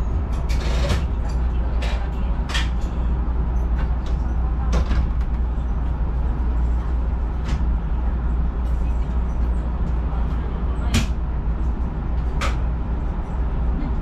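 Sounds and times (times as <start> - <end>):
low rumble inside train car: 0.0 - 14.0.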